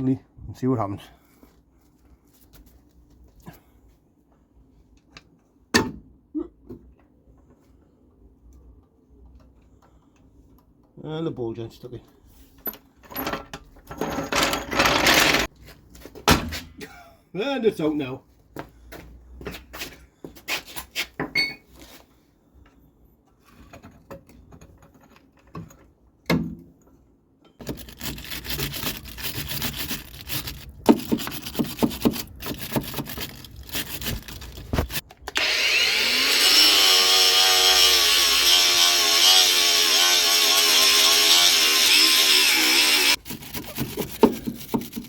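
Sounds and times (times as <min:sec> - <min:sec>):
tools scraping: 0:27.6 - 0:35.5
electric power tool whining: 0:34.8 - 0:43.2.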